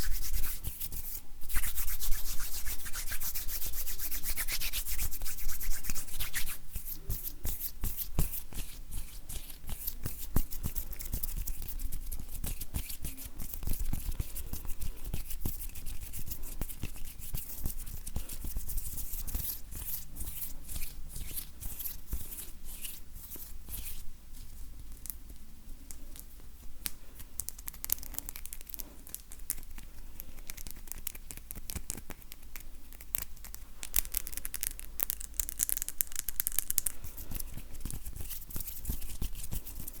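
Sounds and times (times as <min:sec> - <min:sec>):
hands rubbing together: 0:00.0 - 0:24.6.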